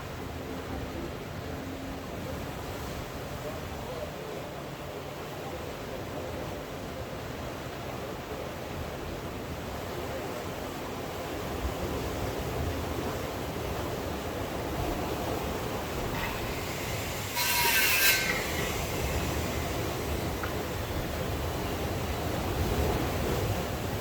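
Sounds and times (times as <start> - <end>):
sea surf: 0.0 - 24.0
burst of hissing noise: 16.1 - 20.9.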